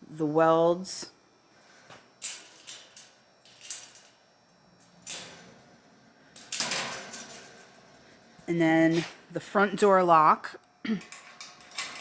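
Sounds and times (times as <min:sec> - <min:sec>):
metal cage scraping: 0:02.2 - 0:09.3, 0:11.0 - 0:12.0.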